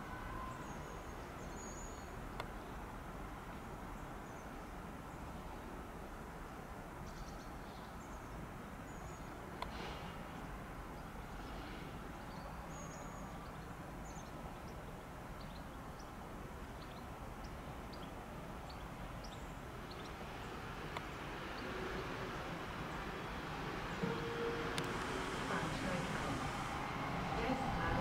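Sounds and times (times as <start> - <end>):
electric train rumbling: 20.2 - 28.0.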